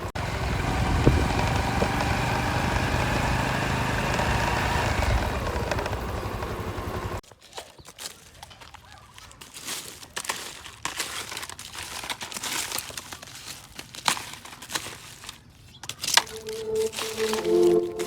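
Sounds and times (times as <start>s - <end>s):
crinkly rustling: 7.2s - 18.0s.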